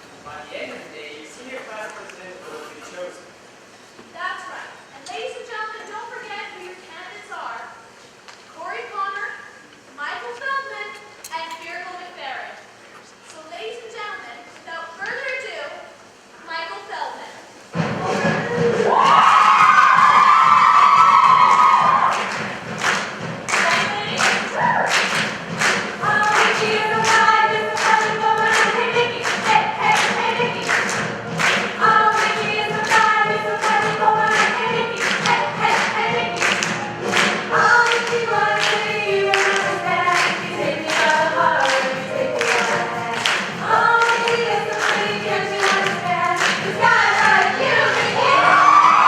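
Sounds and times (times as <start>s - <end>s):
clapped beat: 18.1s - 48.1s
choir singing: 23.6s - 49.0s.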